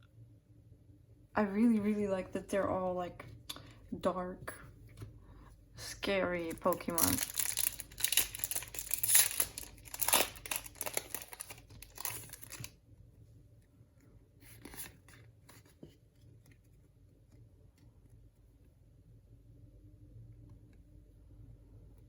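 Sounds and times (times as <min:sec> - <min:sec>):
card pack wrapper tearing and crinkling: 0:06.5 - 0:12.8.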